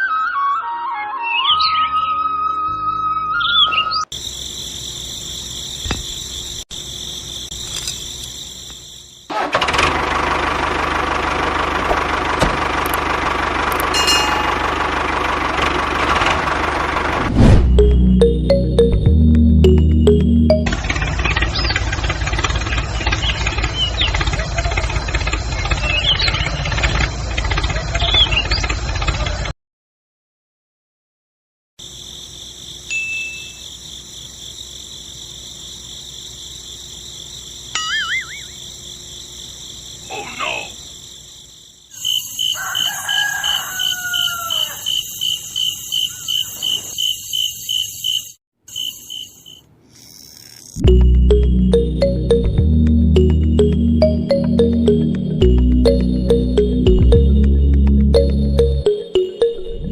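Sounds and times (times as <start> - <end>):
insects chirping: 3.6 - 9.5, 31.8 - 51.6
engine idling with knocking beat: 10.8 - 17.2, 19.7 - 29.5, 53.2 - 58.8
short high chirps: 14.0 - 14.9
rooster crowing: 42.1 - 46.5.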